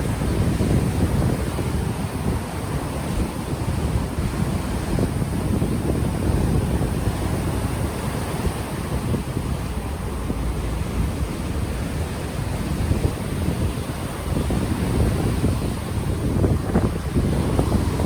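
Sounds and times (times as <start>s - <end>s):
ocean waves washing in: 0.0s - 18.0s
wind buffeting microphone: 0.0s - 18.0s.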